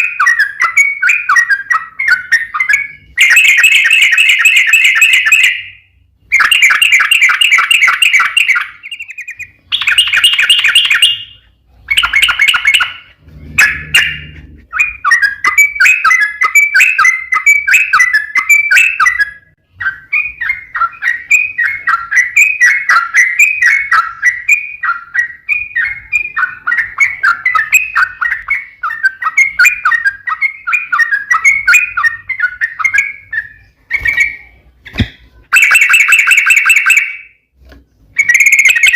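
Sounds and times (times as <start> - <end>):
bird song with buzzy trills: 0.0 - 38.9
bird chattering notes: 6.4 - 37.2.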